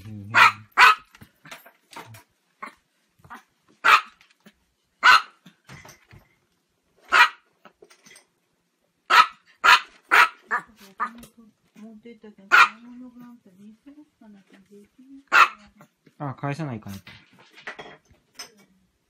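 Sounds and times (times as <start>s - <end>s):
small dog yapping: 0.3s - 1.1s, 2.6s - 4.2s, 5.0s - 5.4s, 7.1s - 7.4s, 9.1s - 11.1s, 15.3s - 15.6s.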